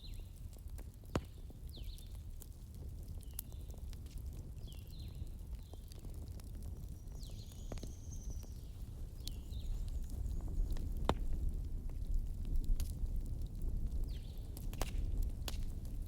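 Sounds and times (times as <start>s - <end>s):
wood fire crackling: 0.0s - 16.0s
small birds chirping: 1.4s - 2.2s, 3.1s - 4.0s, 4.6s - 6.0s, 6.7s - 11.4s.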